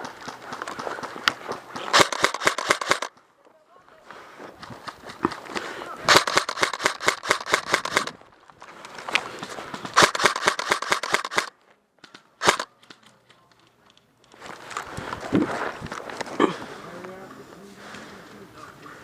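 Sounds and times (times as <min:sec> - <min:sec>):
airsoft gun firing bursts: 0:00.0 - 0:03.1, 0:06.1 - 0:08.2, 0:09.8 - 0:11.5, 0:12.4 - 0:12.7.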